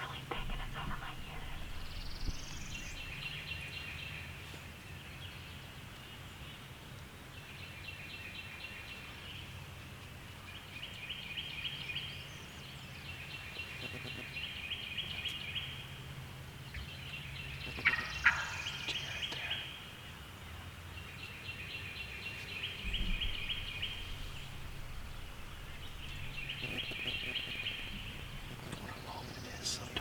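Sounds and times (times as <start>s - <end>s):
steady low hum: 0.0s - 5.6s, 22.2s - 30.0s.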